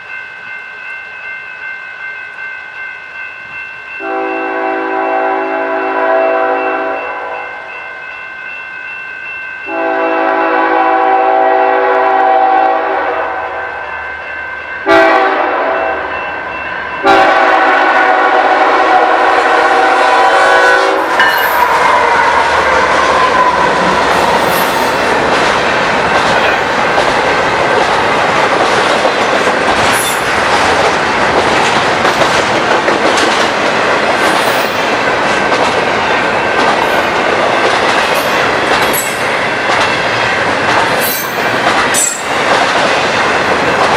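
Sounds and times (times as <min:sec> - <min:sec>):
train rumbling past: 0:00.0 - 0:43.9
train horn blasts: 0:04.0 - 0:07.6, 0:09.7 - 0:13.8, 0:14.8 - 0:16.2, 0:17.0 - 0:21.9
train wheels clicking over rail joints: 0:21.1 - 0:43.9.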